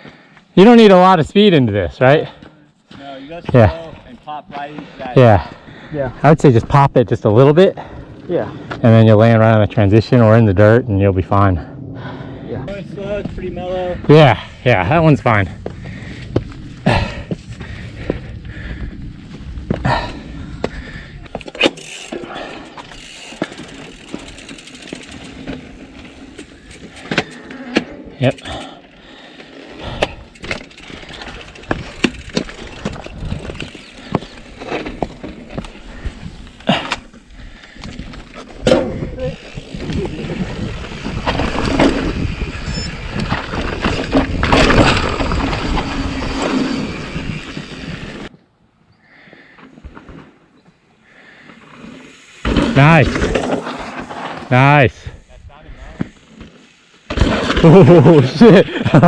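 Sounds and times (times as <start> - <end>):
wind buffeting microphone: 10.8 - 21.4, 31.0 - 36.6, 37.2 - 48.3
bike rattling: 12.0 - 48.3, 49.4 - 59.0
bike tyres crunching on dirt: 12.9 - 48.3, 49.3 - 59.0
tyres crunching on loose rock: 37.6 - 48.1.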